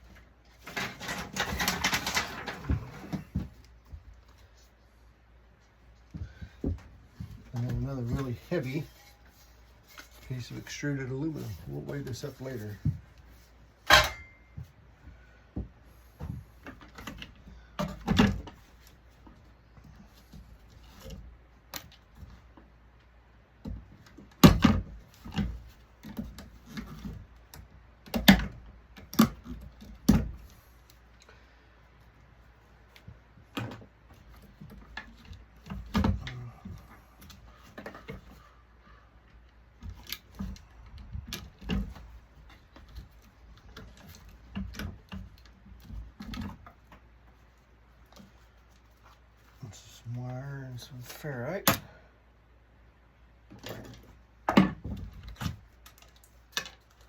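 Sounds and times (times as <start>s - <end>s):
tools and metal parts rattling: 0.5s - 3.2s.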